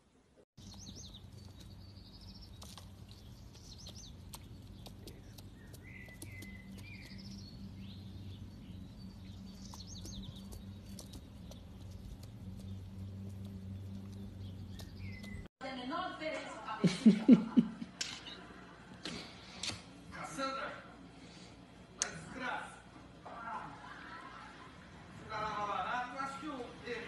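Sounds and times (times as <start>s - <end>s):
small birds chirping: 0.6s - 15.5s
steady low hum: 0.6s - 15.5s.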